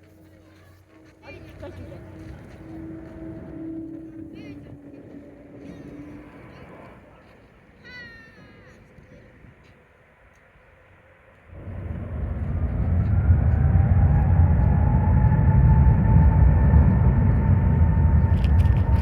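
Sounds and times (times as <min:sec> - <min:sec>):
faint rising whine: 0:01.2 - 0:07.8, 0:09.1 - 0:19.0
jet engines passing: 0:01.3 - 0:19.0.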